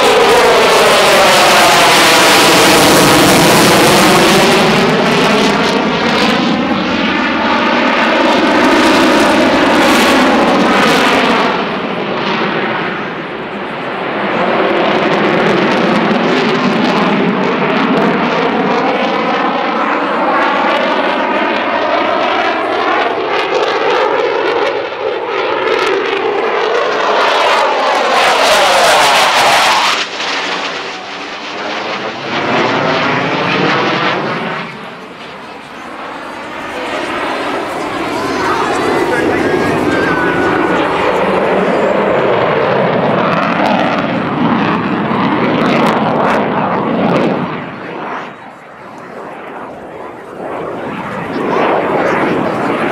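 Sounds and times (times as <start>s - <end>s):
jet engines roaring past: 0.0s - 52.9s.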